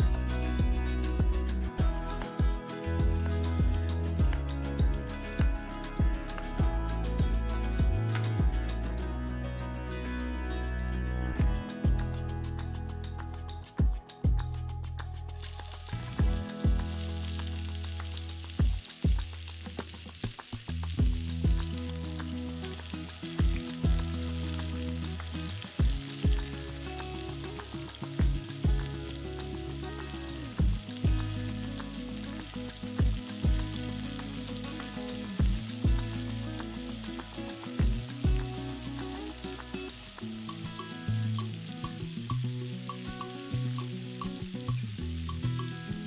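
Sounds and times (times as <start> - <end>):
background music with beat: 0.0 - 19.9, 20.9 - 46.0
food sizzling in oil: 15.4 - 46.0.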